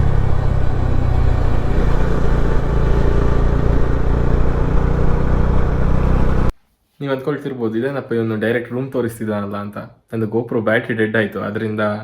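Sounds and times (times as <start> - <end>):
motorcycle engine running: 0.0 - 6.5.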